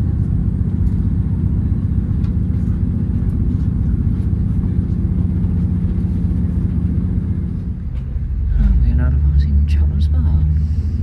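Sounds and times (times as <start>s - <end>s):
train engine and running gear rumble: 0.0s - 11.0s.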